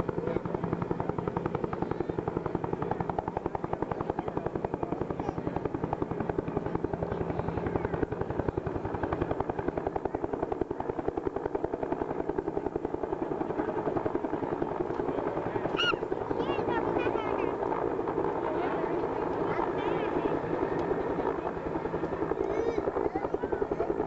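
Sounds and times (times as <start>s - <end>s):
helicopter rotor beating: 0.0s - 24.0s
helicopter turbines: 0.0s - 24.0s.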